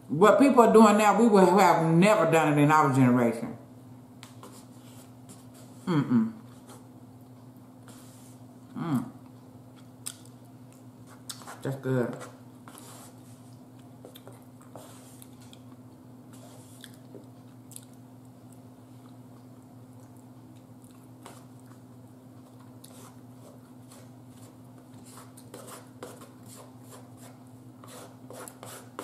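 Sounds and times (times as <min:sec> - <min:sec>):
steady low hum: 0:00.0 - 0:29.0
chewing chicken: 0:16.7 - 0:24.1.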